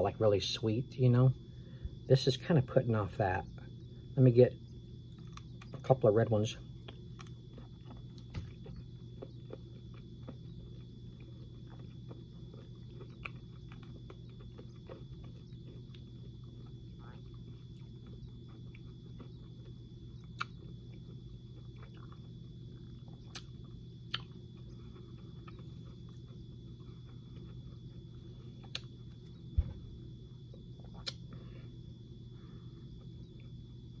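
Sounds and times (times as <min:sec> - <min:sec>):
steady low hum: 0:00.0 - 0:34.0
chewing candies: 0:05.0 - 0:06.0, 0:06.7 - 0:29.3.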